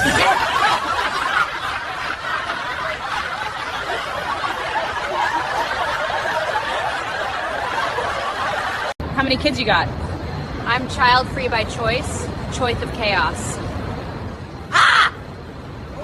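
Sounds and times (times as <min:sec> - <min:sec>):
people laughing: 0:00.0 - 0:09.0.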